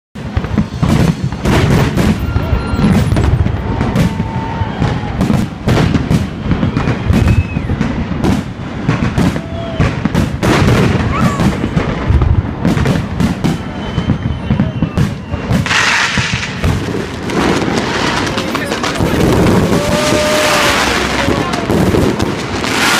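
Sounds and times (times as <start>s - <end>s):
fireworks bangs and booms: 0.2s - 22.9s.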